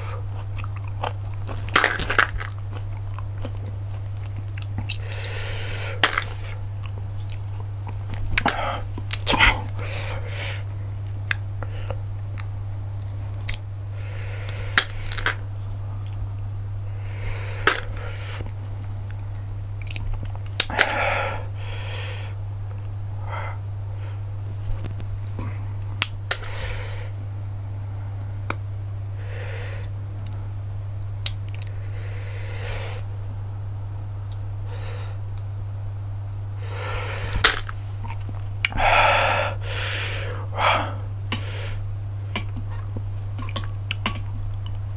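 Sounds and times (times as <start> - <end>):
chewing and slurping: 0.0 - 5.2
steady low hum: 0.0 - 44.9.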